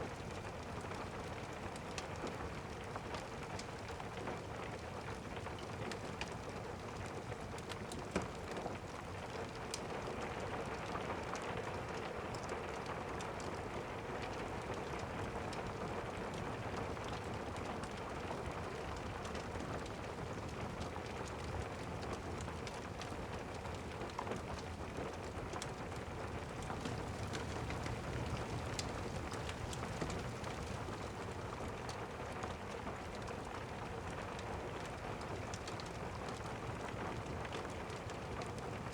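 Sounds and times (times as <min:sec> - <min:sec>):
rain patter: 0:00.0 - 0:38.9
small clicks and pops: 0:26.6 - 0:31.2.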